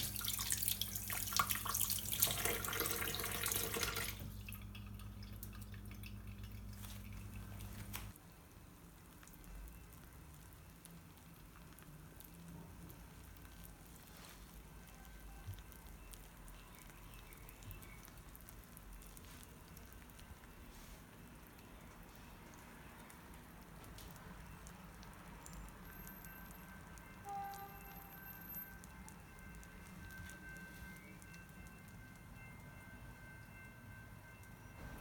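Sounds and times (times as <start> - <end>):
tap running water: 0.0 - 8.1
faint water drips: 0.0 - 32.3
low steady hum: 0.0 - 35.0.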